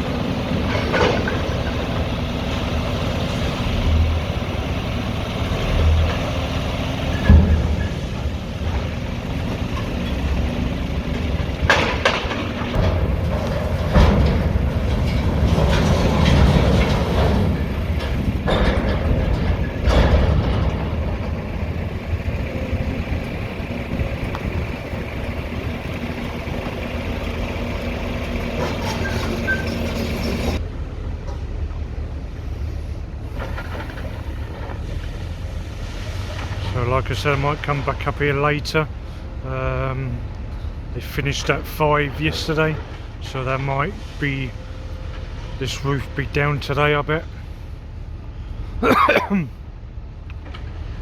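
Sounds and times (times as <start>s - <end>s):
rubble crashing: 0.0s - 30.6s
excavator engine running: 0.0s - 51.0s.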